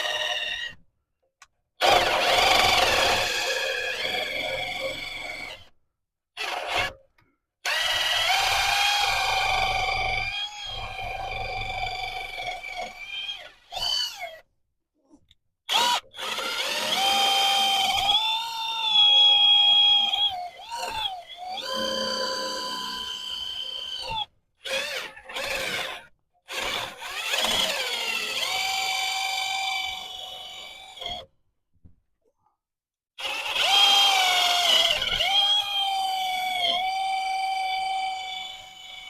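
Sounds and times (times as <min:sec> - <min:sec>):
power tool motor whining: 0:15.7 - 0:31.2.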